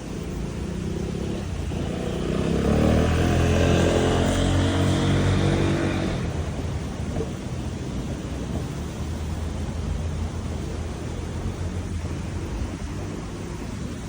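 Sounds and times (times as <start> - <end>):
motor vehicle passing: 0.0 - 7.4.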